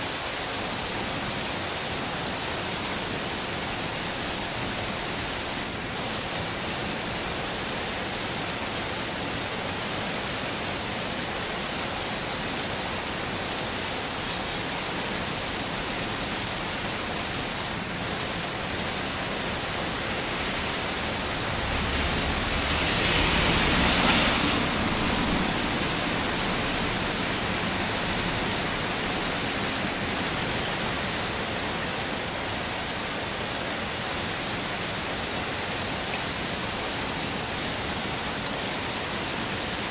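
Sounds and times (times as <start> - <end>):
heavy rain hissing: 0.0 - 39.9
low rumble: 20.3 - 27.2.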